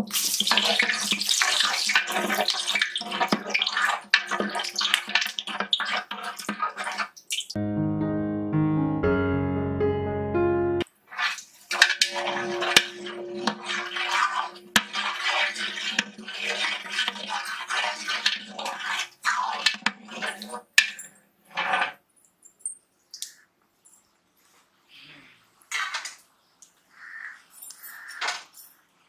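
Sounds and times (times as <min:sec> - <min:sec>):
utensil scraping in cooking pot: 0:00.0 - 0:07.5, 0:11.1 - 0:22.0.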